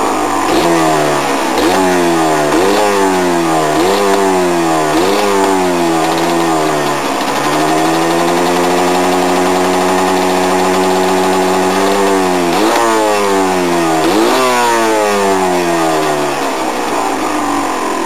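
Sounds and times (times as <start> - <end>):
two-stroke motorcycle engine revving: 0.0 - 18.0.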